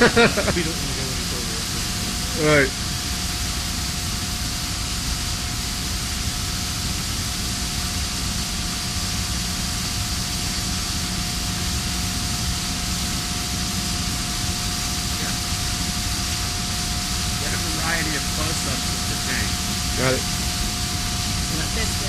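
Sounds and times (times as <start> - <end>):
high-pitched whine: 0.0 - 22.0.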